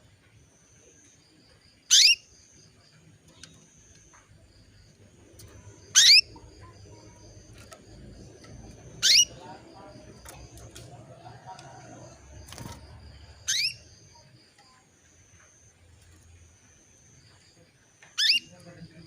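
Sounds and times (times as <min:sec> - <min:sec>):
faint high twittering: 0:00.5 - 0:19.0
canary rising calls: 0:05.7 - 0:09.5, 0:12.0 - 0:13.9.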